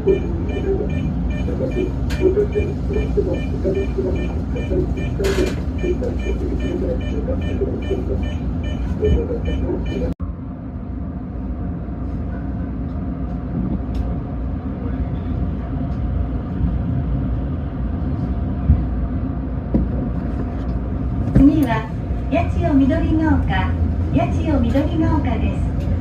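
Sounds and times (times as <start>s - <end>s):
rapid high beeping: 0.0s - 10.2s
electric train rumbling: 0.0s - 26.0s.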